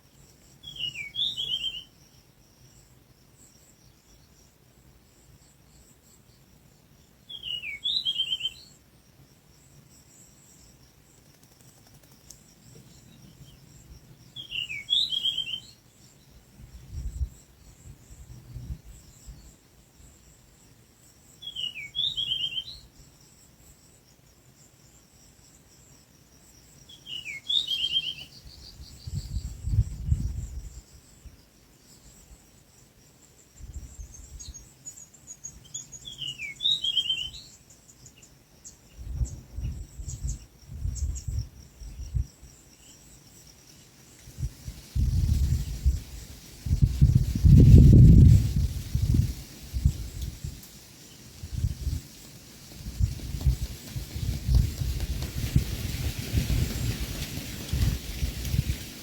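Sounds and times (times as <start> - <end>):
high insect trill: 0.0 - 59.0
bird calling: 27.0 - 28.7.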